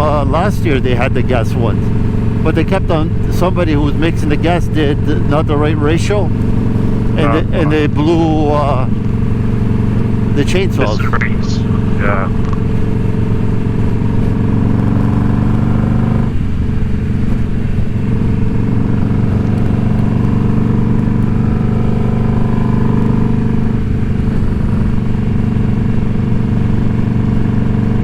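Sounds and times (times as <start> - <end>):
motorcycle engine running: 0.0 - 10.7, 11.7 - 28.0.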